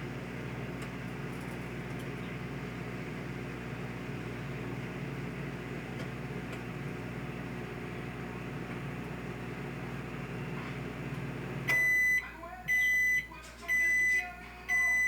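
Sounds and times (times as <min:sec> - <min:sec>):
microwave oven humming: 0:00.0 - 0:15.0
high microwave beep: 0:11.6 - 0:15.0.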